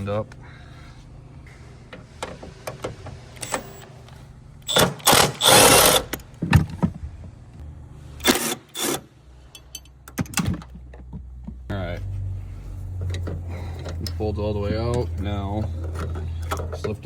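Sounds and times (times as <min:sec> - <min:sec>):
cordless power tool running: 0:04.7 - 0:06.1.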